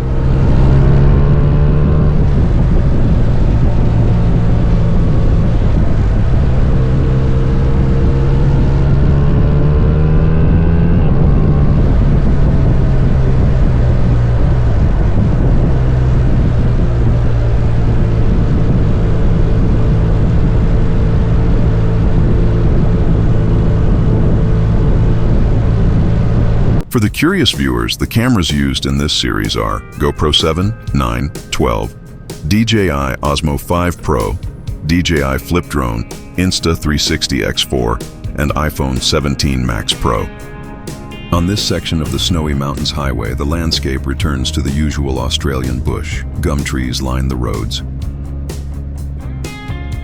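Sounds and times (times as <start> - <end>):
motorcycle engine running: 0.0 - 26.8, 47.8 - 50.0
wind rush: 0.0 - 26.9
road noise: 0.0 - 50.0.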